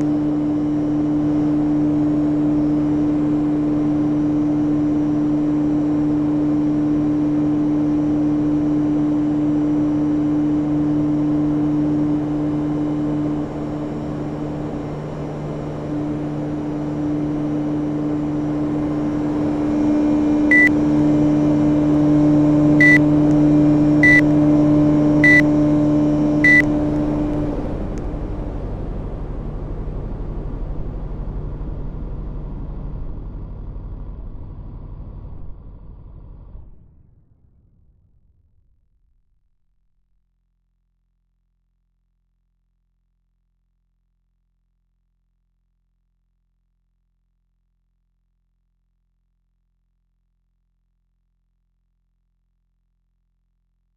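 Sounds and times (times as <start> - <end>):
air conditioner humming: 10.8 - 32.4
short high beeps: 20.5 - 20.7, 24.0 - 24.3, 25.2 - 25.4, 26.4 - 26.7.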